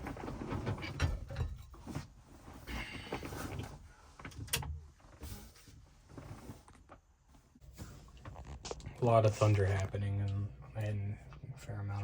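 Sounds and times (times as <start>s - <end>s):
small rustles: 0.0s - 10.0s.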